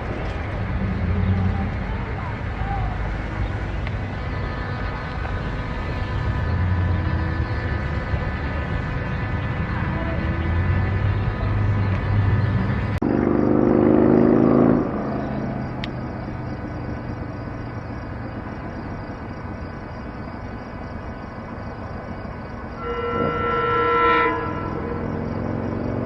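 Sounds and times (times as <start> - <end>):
steady noise: 0.0 - 26.0
train horn blasts: 22.8 - 25.7.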